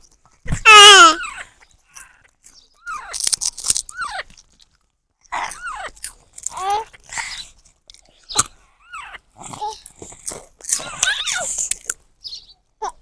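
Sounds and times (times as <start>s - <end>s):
baby parrot squawking: 0.7s - 1.6s, 8.3s - 9.9s, 10.8s - 11.6s.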